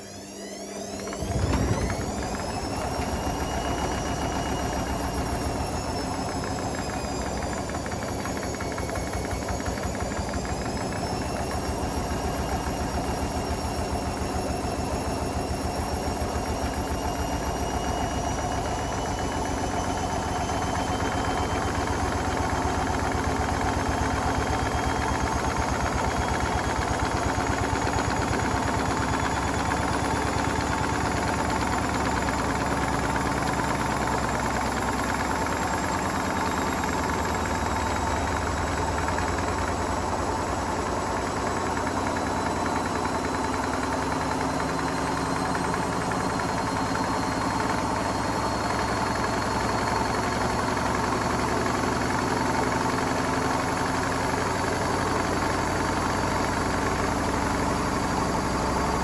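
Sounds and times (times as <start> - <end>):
faint high whine: 0.0 - 21.2
washing machine hum: 0.0 - 59.0
fast low rattle: 1.1 - 11.5.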